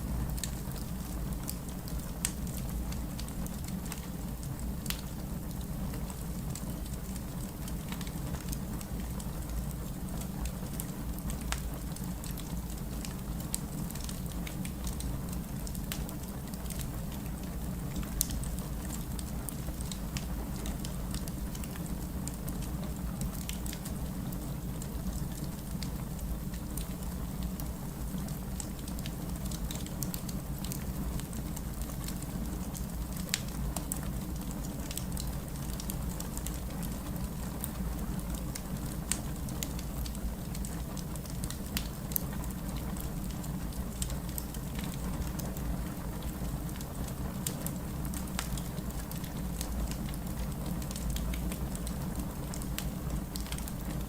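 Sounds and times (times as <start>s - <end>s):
steady rain: 0.0s - 54.0s
wood fire crackling: 0.1s - 54.0s.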